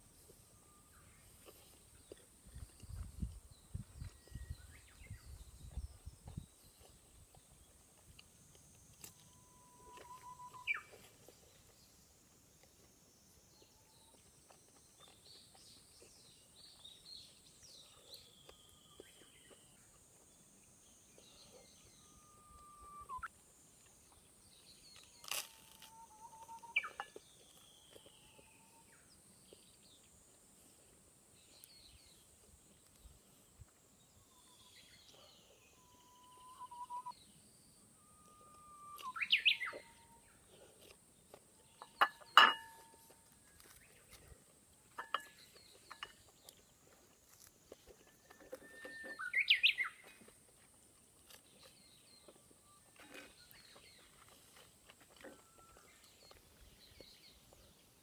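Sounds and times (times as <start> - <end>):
birds whistling: 9.3 - 11.0, 22.0 - 23.3, 35.2 - 37.2, 38.0 - 40.2, 48.4 - 50.1
high bird chirps: 9.3 - 11.0, 22.0 - 23.3, 25.9 - 28.0, 35.8 - 37.2, 38.4 - 40.2.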